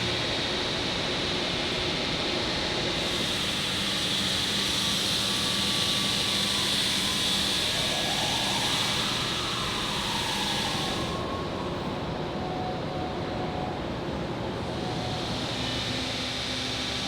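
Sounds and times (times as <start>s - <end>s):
industrial machine hissing: 2.9s - 11.6s.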